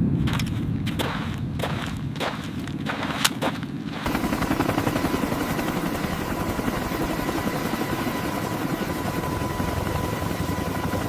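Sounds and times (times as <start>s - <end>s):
thin steady whine: 3.9s - 11.0s
helicopter rotor pulsing: 4.0s - 11.0s.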